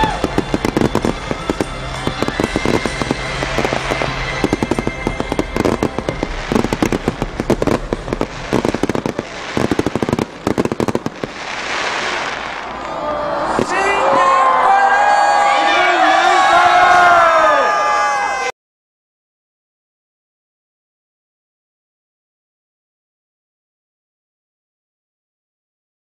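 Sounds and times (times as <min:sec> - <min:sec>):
rising firework hiss: 0:00.0 - 0:13.7
fireworks bangs and crackles: 0:00.0 - 0:14.2.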